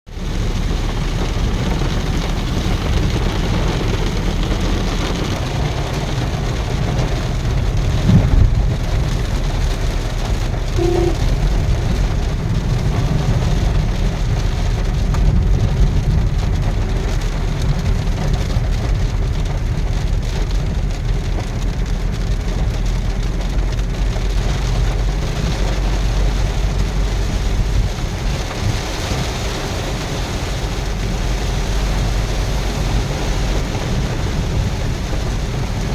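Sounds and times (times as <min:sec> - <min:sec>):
heavy rain on a vehicle: 0:00.1 - 0:35.9
road and engine noise: 0:00.1 - 0:35.9
brief pitched tone: 0:10.8 - 0:11.4.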